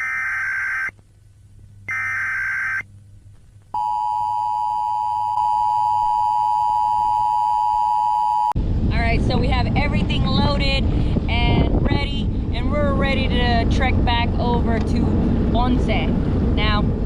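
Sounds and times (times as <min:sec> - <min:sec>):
long steady high beep: 0:00.0 - 0:00.9, 0:01.9 - 0:02.8, 0:03.8 - 0:08.5
short electronic beeps: 0:01.9 - 0:02.8.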